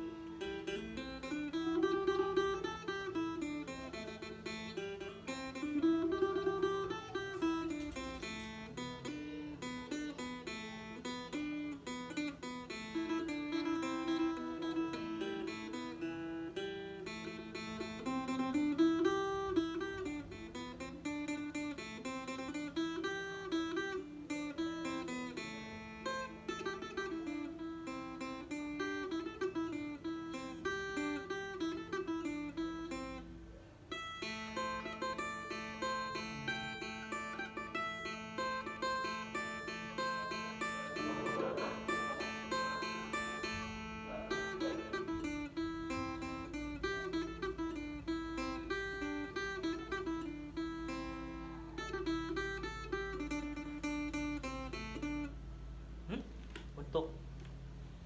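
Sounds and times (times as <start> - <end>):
plucked lute melody: 0.0 - 57.8.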